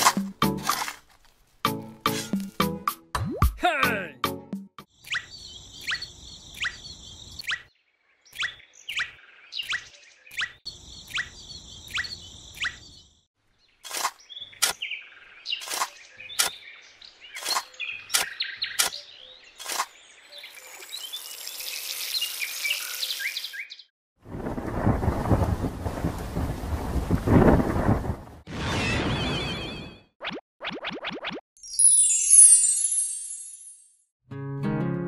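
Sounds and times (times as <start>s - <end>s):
sharp bird chirps: 4.9s - 23.9s.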